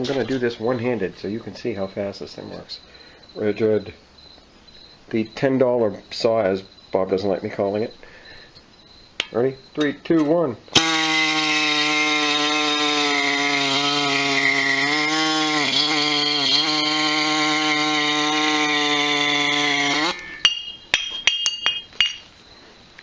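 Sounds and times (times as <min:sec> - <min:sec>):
air saw buzzing: 0:10.7 - 0:20.8
light metal clinks: 0:20.2 - 0:22.4.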